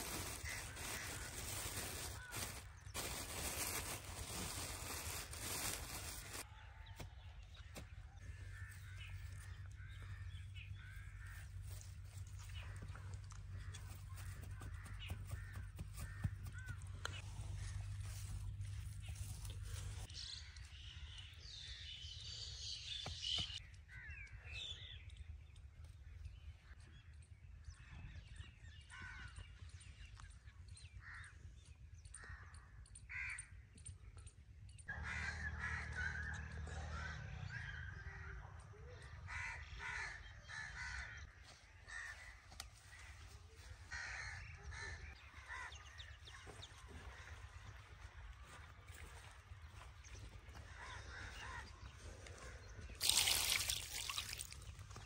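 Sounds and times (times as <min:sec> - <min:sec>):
birds calling: 0:00.0 - 0:25.1, 0:35.0 - 0:55.0.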